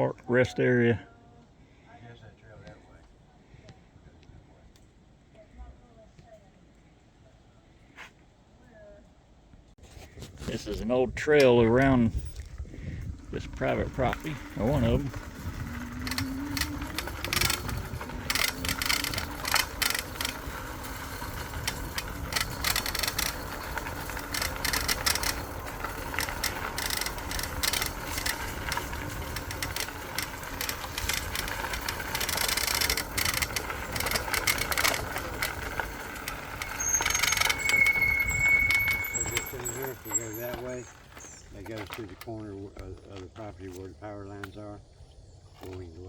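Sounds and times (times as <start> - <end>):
tyres rumbling on ground: 10.5 - 43.5
bike rattling and clicking: 11.2 - 43.8.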